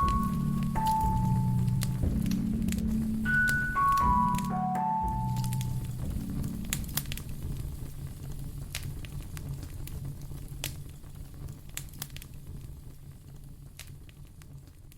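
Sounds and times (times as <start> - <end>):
low rumble of flames: 0.0 - 4.3, 5.1 - 14.9
wood fire crackling: 0.0 - 4.5, 5.1 - 14.9
sharp pops of fire: 6.2 - 14.8.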